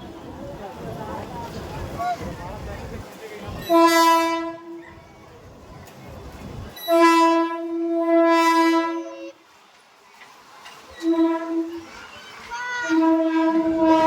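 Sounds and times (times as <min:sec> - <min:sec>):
train horn blasts: 0:03.6 - 0:04.8, 0:06.8 - 0:09.4, 0:11.0 - 0:11.9, 0:12.7 - 0:14.0.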